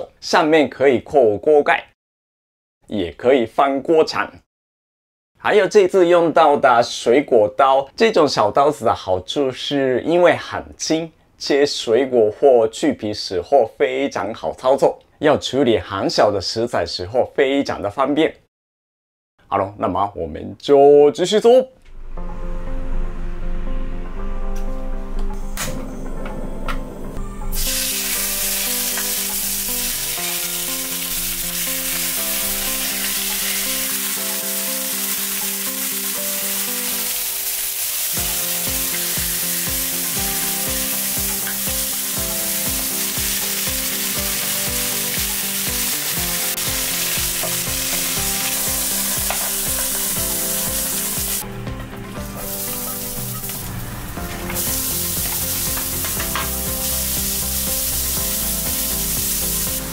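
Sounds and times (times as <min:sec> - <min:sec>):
chicken sizzling in oil: 0:27.5 - 0:51.4, 0:52.4 - 0:59.9
background music with beat: 0:38.1 - 0:53.6, 0:54.2 - 0:59.9.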